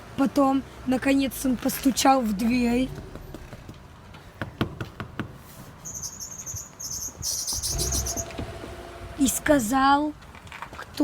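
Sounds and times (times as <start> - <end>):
high rapidly pulsing chirping: 5.8 - 8.3.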